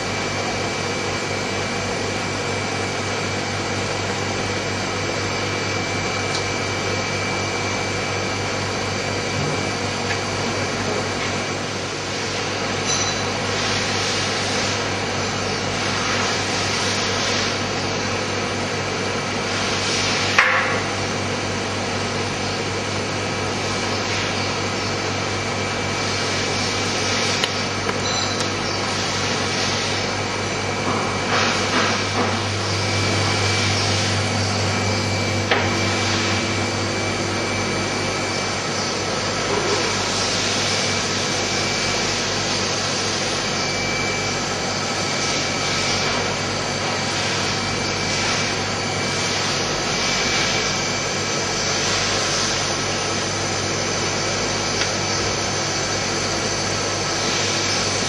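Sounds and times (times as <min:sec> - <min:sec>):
cutting machine humming: 0:00.0 - 0:16.6, 0:20.4 - 0:58.0
hiss: 0:13.4 - 0:15.0, 0:15.7 - 0:17.7, 0:19.4 - 0:20.9, 0:28.8 - 0:30.2.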